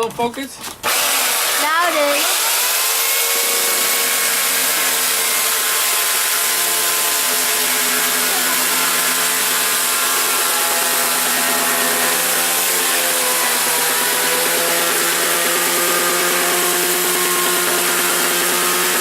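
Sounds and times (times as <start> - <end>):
chainsaw cutting plastic: 0.0 - 19.0.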